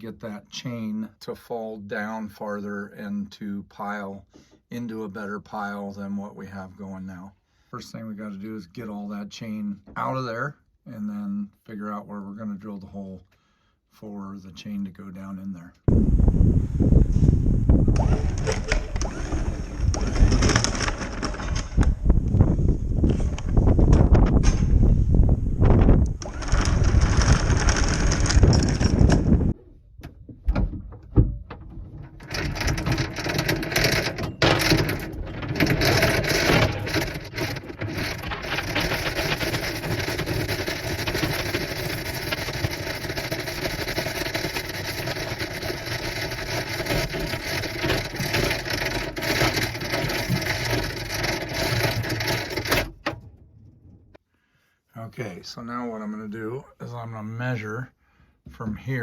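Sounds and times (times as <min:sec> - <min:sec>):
anchor chain rattling: 0:18.0 - 0:22.0, 0:26.2 - 0:29.6, 0:31.6 - 0:53.2.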